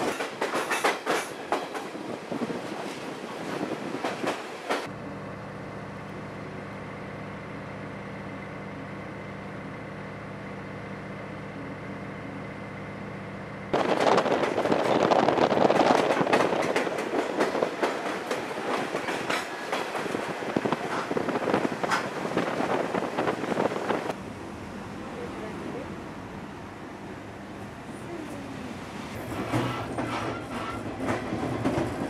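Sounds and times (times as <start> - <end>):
train wheels clattering on rails: 0.0 - 4.9, 13.7 - 24.2, 29.1 - 32.0
wind noise: 1.8 - 4.4, 13.7 - 24.2.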